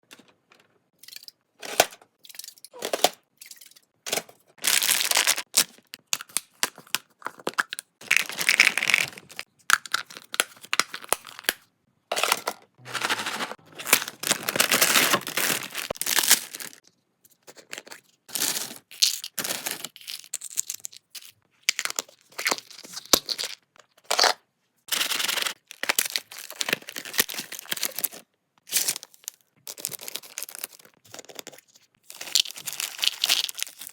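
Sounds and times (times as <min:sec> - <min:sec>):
packaging tearing and crinkling: 0:04.6 - 0:05.9, 0:07.5 - 0:11.6, 0:12.2 - 0:16.8, 0:32.1 - 0:33.9.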